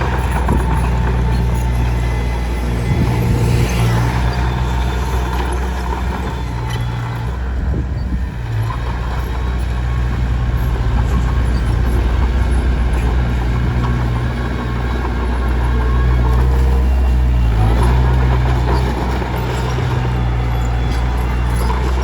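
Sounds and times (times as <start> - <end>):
bulldozer diesel engine running: 0.0 - 22.0.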